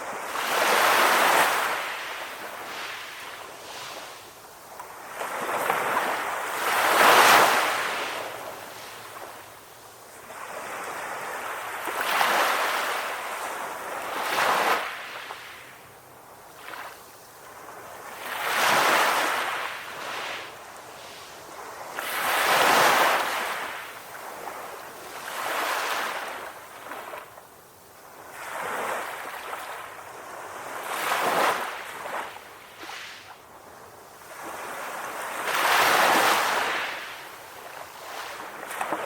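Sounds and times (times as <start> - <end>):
sea waves breaking on beach: 4.9 - 9.5, 16.6 - 27.3, 34.2 - 39.0.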